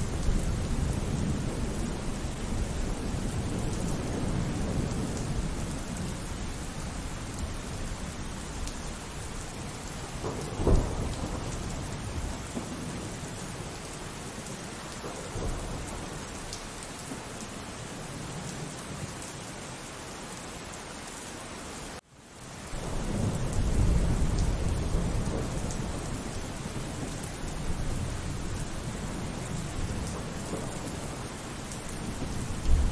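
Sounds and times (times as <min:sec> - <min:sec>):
heavy roll of thunder: 0:00.0 - 0:13.9, 0:14.9 - 0:16.3, 0:22.7 - 0:32.9
steady rain falling: 0:00.0 - 0:32.9
thunderclap: 0:10.0 - 0:13.4, 0:22.8 - 0:31.3, 0:32.0 - 0:32.9.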